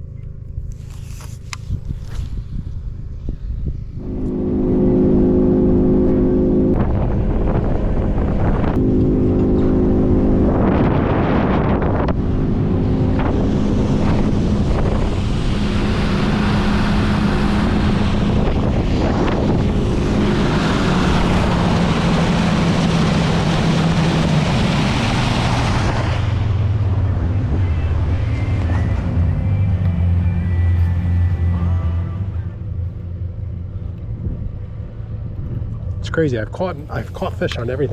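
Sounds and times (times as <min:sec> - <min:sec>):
wind on microphone: 0:01.2 - 0:29.4
outboard motor running: 0:04.0 - 0:37.9
rushing water: 0:13.7 - 0:27.1.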